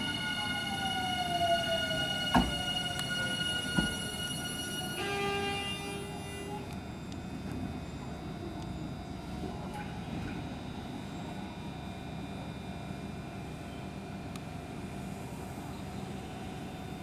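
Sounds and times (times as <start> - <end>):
electric train braking: 0.0 - 6.7
sharp knocks: 2.3 - 2.7.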